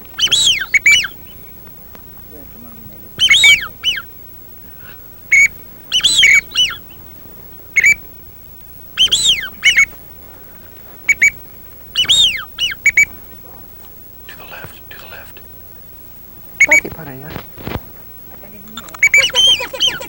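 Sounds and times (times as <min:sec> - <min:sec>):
duck whistle call: 0:00.2 - 0:01.4, 0:03.2 - 0:04.1, 0:05.3 - 0:07.0, 0:07.7 - 0:08.1, 0:09.0 - 0:10.0, 0:11.0 - 0:13.2, 0:16.6 - 0:16.9, 0:19.0 - 0:20.0.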